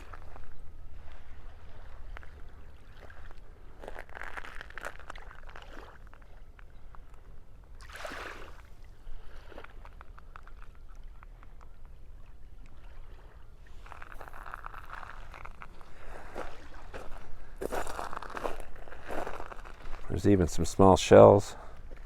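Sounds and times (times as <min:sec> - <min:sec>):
crunching footsteps: 0:03.0 - 0:06.2, 0:13.7 - 0:22.0.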